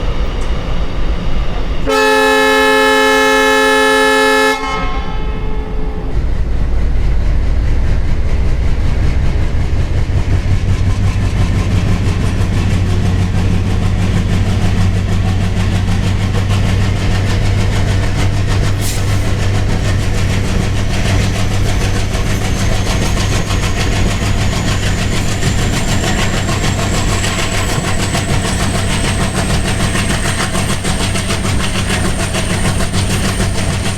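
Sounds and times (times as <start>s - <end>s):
diesel engine chugging: 0.0s - 33.9s
locomotive horn: 1.8s - 6.5s.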